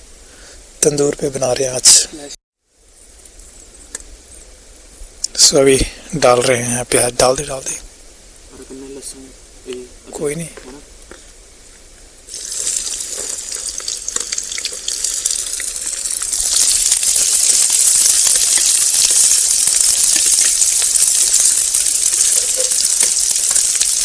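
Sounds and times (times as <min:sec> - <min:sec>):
onions sizzling in hot oil: 0:12.3 - 0:24.0.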